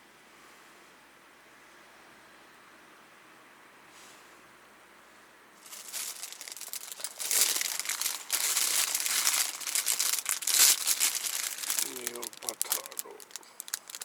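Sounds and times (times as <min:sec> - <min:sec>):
packaging crinkling: 0:05.6 - 0:14.0.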